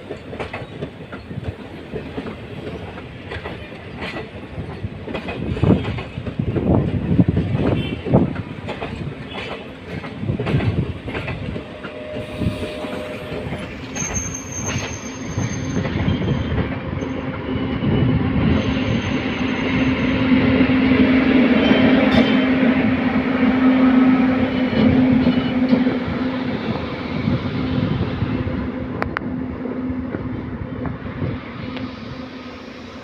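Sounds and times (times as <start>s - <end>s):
train wheels clattering on joints: 0.0s - 17.5s
high wheel squeals: 11.8s - 20.4s.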